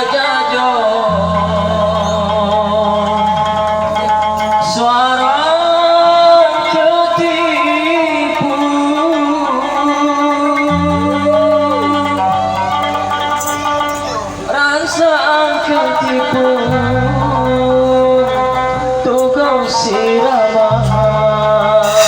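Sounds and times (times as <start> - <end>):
ensemble music with sliding melody: 10.6 - 15.4, 16.3 - 22.0.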